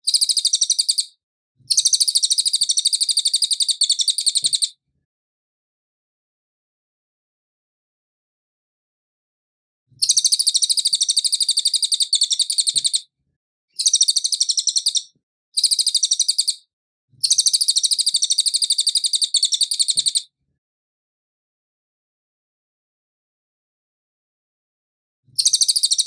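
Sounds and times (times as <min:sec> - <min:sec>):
songbird trilling: 0:00.1 - 0:01.1, 0:01.7 - 0:04.7, 0:10.0 - 0:13.0, 0:13.7 - 0:16.6, 0:17.2 - 0:20.2, 0:25.4 - 0:26.0.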